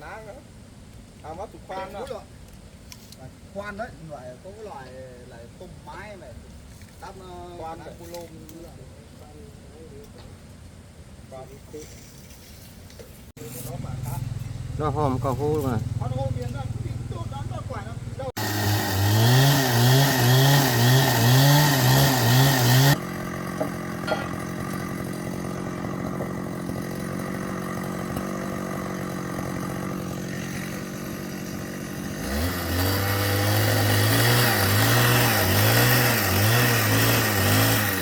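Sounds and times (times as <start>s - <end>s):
engine drill boring into wood: 18.4s - 38.0s.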